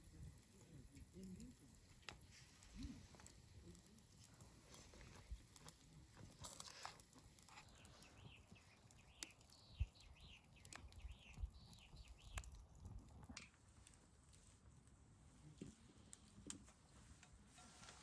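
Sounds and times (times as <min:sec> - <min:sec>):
faint bird chirps: 0:07.6 - 0:12.6.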